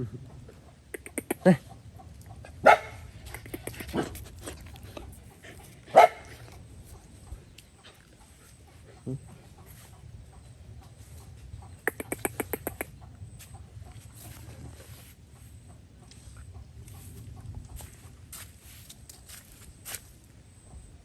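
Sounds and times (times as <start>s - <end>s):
bird calls: 5.2s - 15.0s.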